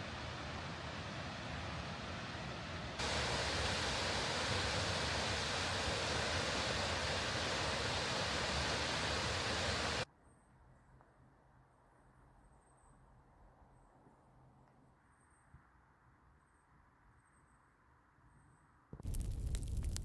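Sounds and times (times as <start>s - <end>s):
waterfall rushing hiss: 0.0s - 10.0s.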